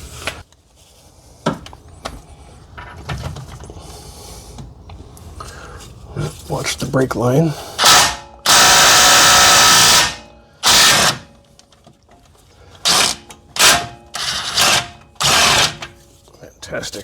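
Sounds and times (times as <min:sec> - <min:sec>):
power tool bursts: 0:07.8 - 0:11.4, 0:12.8 - 0:16.0.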